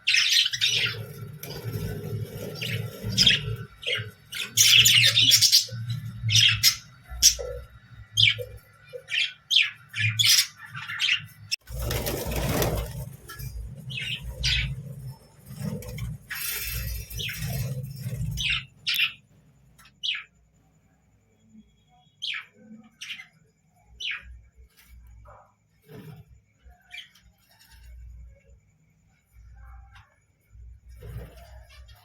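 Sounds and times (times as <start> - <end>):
loud rustling: 11.6 - 17.9.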